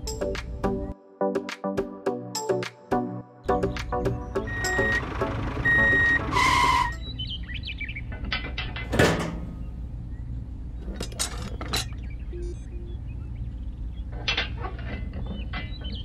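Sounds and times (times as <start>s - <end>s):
birds chirping: 3.4s - 8.2s, 9.0s - 14.3s, 15.0s - 16.0s
loud two-tone sound: 4.4s - 7.0s
steady low hum: 8.9s - 14.4s.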